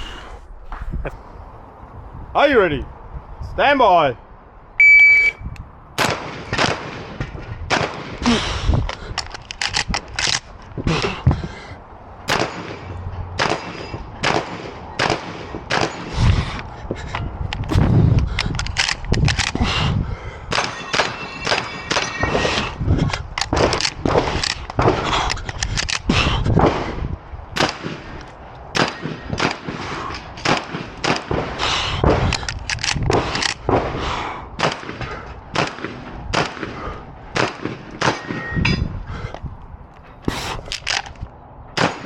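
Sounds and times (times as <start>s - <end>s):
shotgun shots with echo: 6.0s - 8.2s, 12.3s - 16.0s, 17.7s - 18.1s.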